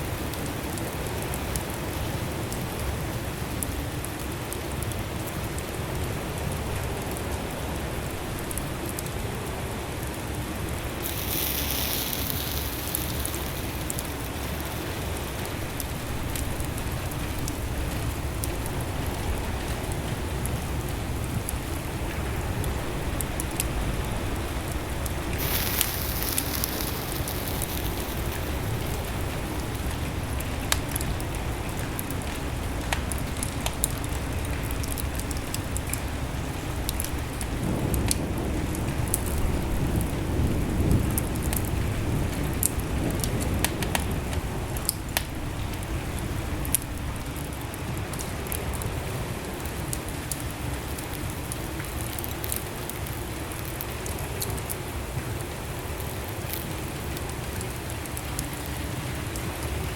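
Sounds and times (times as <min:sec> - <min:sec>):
fire flames rumbling: 0:10.0 - 0:58.6
fire crackling and popping: 0:10.0 - 0:59.5
fire hissing: 0:10.8 - 0:20.0, 0:22.7 - 0:31.2.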